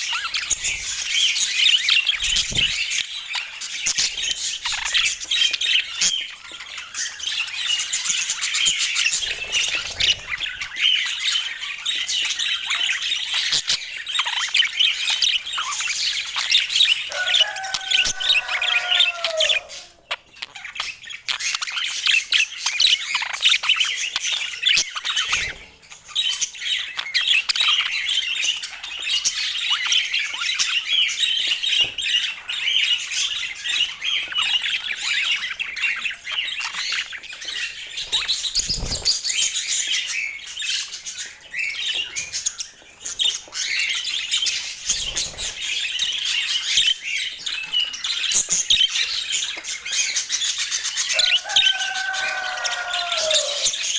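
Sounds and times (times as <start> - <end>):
budgerigars chattering: 0.0 - 53.9.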